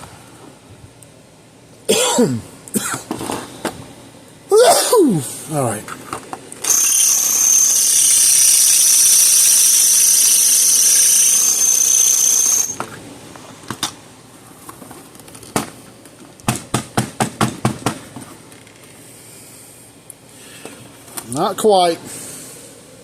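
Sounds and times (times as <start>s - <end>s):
drill bit squealing into steel: 6.6s - 12.8s.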